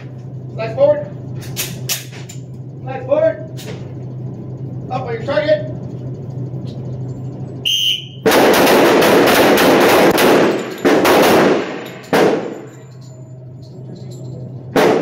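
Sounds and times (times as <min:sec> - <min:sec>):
whistle blast: 0:07.6 - 0:08.3
handgun shots echoing: 0:08.2 - 0:12.8, 0:14.7 - 0:15.0.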